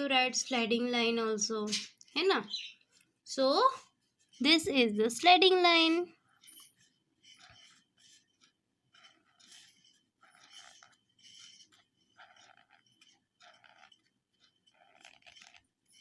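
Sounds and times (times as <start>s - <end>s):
pen scratching on paper: 3.8s - 16.0s.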